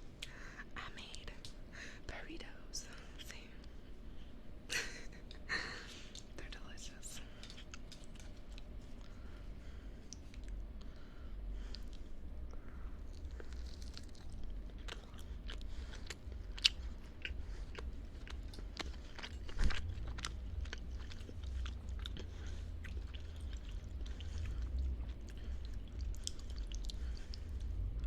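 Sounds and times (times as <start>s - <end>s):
steady low hum: 0.0s - 28.0s
mouth chewing clicks: 11.6s - 27.7s.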